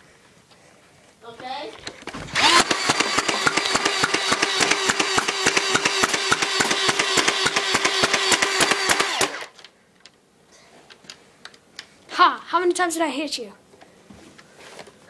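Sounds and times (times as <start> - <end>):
fast even clicking of shots: 2.4 - 9.6
toy blaster motor hum: 2.4 - 9.6.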